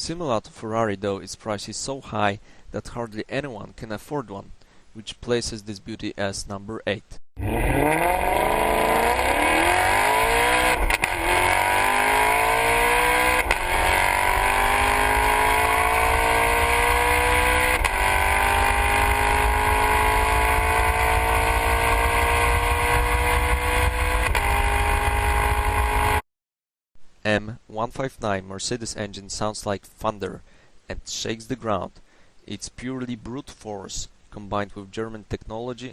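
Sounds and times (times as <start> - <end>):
car engine accelerating through gears: 7.4 - 26.2.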